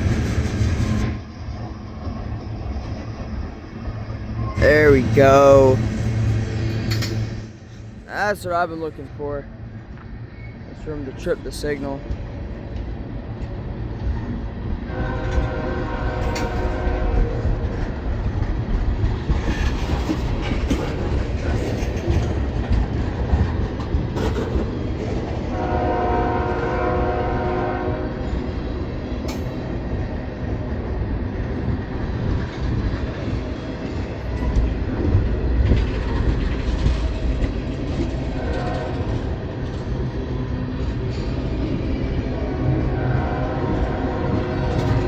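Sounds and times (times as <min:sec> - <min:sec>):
train cars clattering on rails: 0:00.0 - 0:09.1, 0:10.9 - 0:45.0
freight train rumbling past: 0:00.0 - 0:45.0
locomotive air horn: 0:14.9 - 0:17.5, 0:25.5 - 0:28.2, 0:38.4 - 0:39.2, 0:42.9 - 0:45.0.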